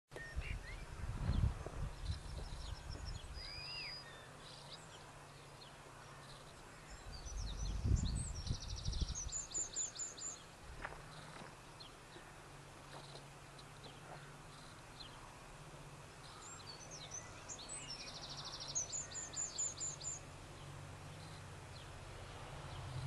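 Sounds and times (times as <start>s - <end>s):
small birds chirping: 0.1s - 23.0s
bird trill: 2.0s - 5.1s, 16.2s - 20.2s.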